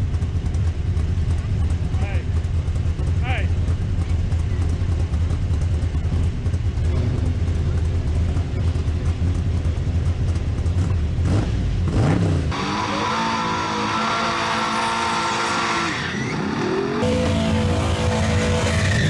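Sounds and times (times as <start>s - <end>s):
drag racing engine revving: 10.3s - 19.0s.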